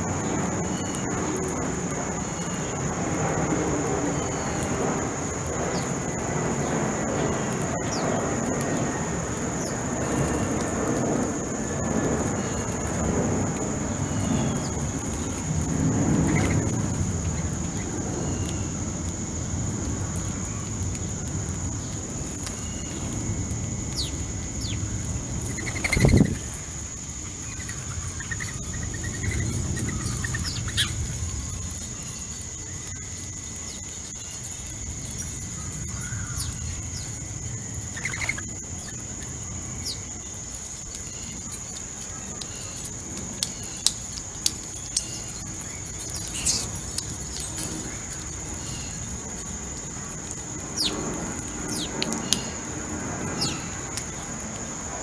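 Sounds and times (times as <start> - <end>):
low outdoor rumble: 0.0 - 55.0
birds chirping at feeder: 25.5 - 26.4, 44.8 - 47.9.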